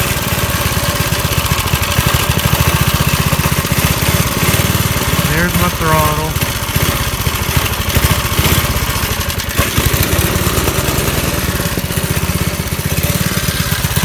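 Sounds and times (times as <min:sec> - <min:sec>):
small engine running steadily: 0:00.0 - 0:14.0.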